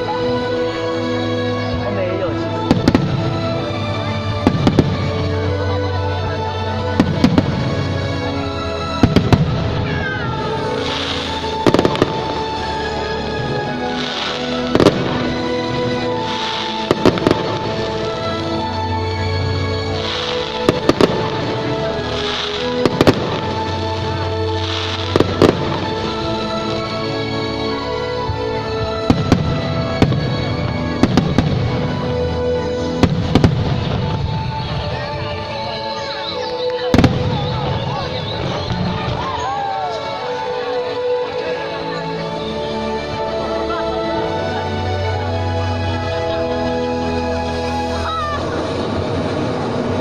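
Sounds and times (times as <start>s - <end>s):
background music: 0.0s - 50.0s
fireworks crackling hiss: 0.0s - 50.0s
fireworks bangs: 2.6s - 5.6s, 6.9s - 27.0s, 29.0s - 35.4s, 36.4s - 40.0s.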